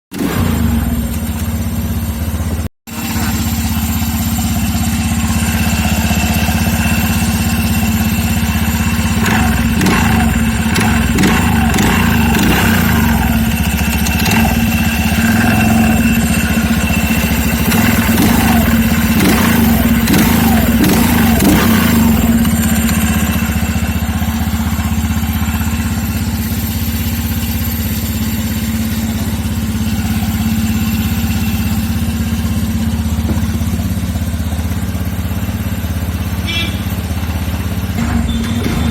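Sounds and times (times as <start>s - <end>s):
engine rattling clatter: 0.1s - 38.9s
scooter engine running: 0.1s - 38.9s.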